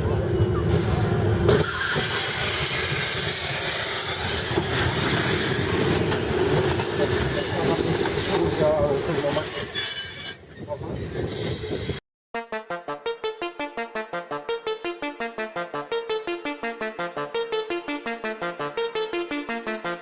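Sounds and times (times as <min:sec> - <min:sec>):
rail rumbling: 0:00.0 - 0:12.0
train wheels squealing: 0:00.3 - 0:12.0.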